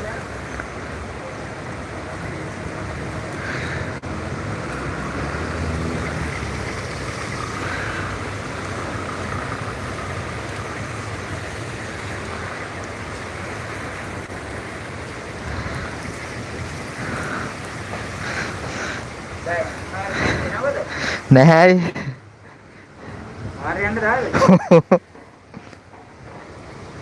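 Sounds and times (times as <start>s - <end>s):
heavy rain in wind: 0.0s - 27.0s.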